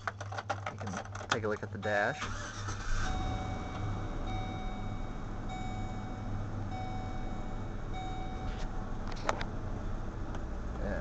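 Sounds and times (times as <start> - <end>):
dashboard warning chime: 1.7 - 8.7.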